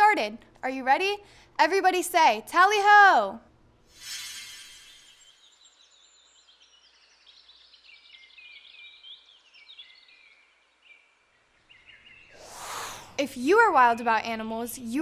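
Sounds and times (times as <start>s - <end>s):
faint songbird chirps: 4.2s - 13.2s.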